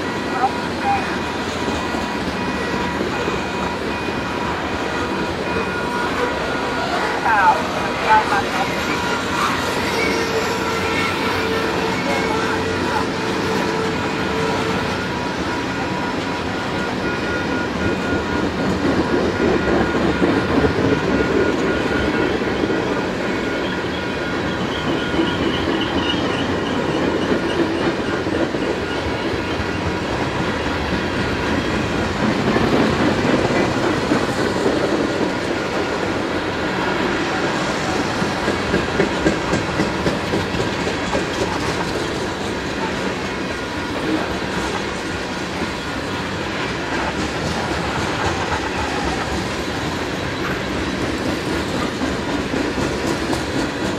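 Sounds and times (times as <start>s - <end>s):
freight train wheels clickety-clack: 0.0s - 53.9s.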